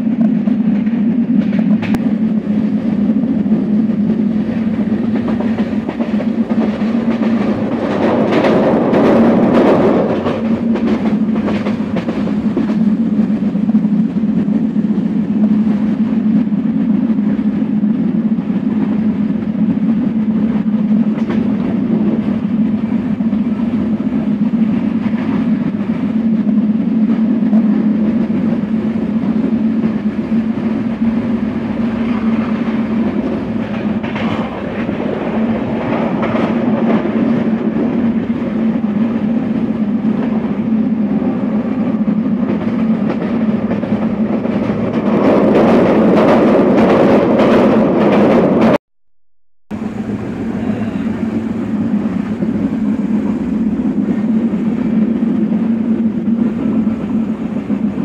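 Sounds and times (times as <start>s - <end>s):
sharp train clatters: 0.0s - 48.8s
train wheels rumbling on rails: 0.0s - 48.8s, 49.7s - 58.0s.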